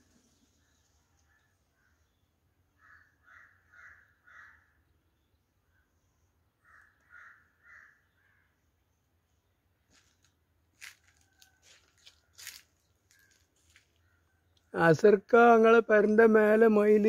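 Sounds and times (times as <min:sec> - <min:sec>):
bird cawing: 0:00.6 - 0:04.9, 0:06.6 - 0:08.6, 0:10.8 - 0:14.5.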